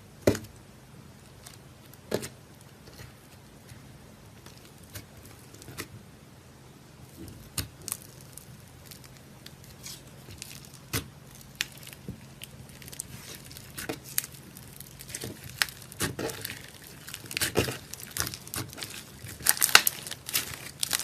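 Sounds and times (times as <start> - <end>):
faint steady hum: 0.0 - 21.0
slime squished by hand: 7.1 - 21.0.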